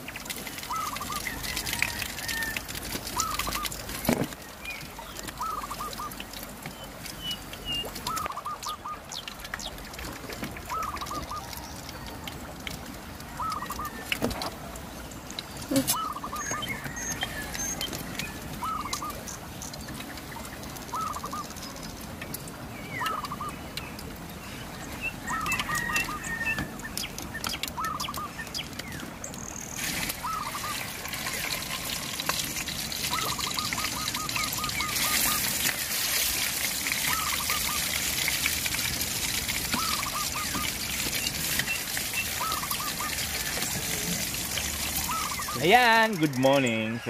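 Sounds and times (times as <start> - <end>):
bird calling: 0.6 - 6.2, 7.1 - 9.3, 10.7 - 12.1, 13.3 - 14.3, 15.6 - 19.4, 20.9 - 21.8, 22.8 - 32.1, 33.0 - 36.0, 37.0 - 38.0, 39.7 - 44.2, 44.9 - 47.0.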